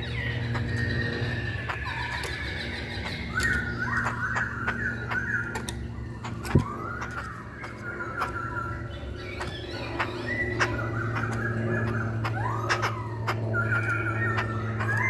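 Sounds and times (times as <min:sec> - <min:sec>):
bird singing whistled notes: 0:00.0 - 0:15.0
steady low hum: 0:00.0 - 0:15.0.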